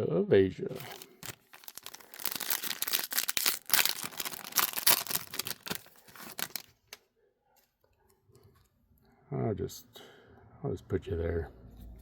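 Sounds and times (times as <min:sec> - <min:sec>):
plastic foil wrapper crinkling: 0:00.8 - 0:07.0.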